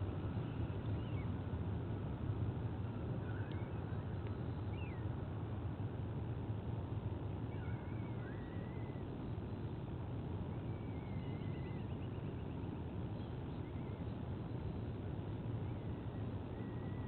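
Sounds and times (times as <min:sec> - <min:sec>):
low outdoor rumble: 0:00.0 - 0:17.0
bird whistles and chirps: 0:04.7 - 0:05.0, 0:07.5 - 0:09.0, 0:10.6 - 0:12.1.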